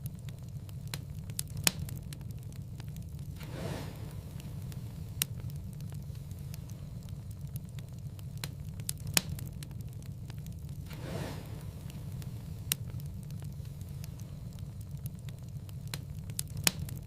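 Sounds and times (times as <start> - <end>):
low rumble of flames: 0.0 - 17.0
wood fire crackling: 0.0 - 17.0
soft whoosh: 3.4 - 5.3, 10.8 - 12.8.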